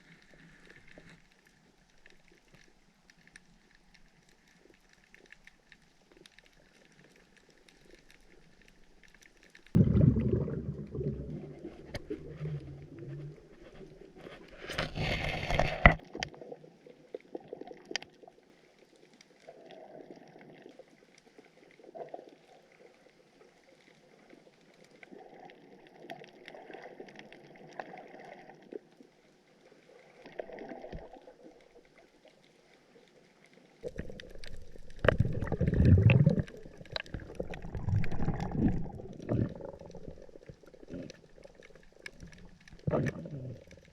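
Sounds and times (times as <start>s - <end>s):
low churning water: 0.0s - 43.9s
muffled underwater movement: 0.0s - 43.9s.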